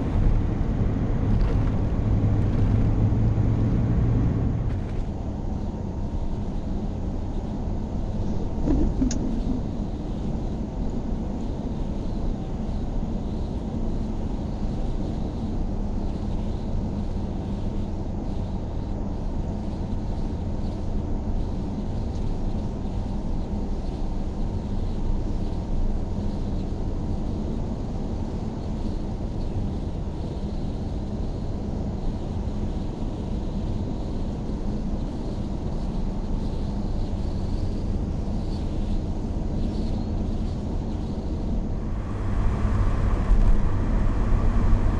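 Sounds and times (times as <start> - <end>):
car driving rumble: 0.0 - 5.1, 41.7 - 44.9
faint steady hum: 41.7 - 44.9.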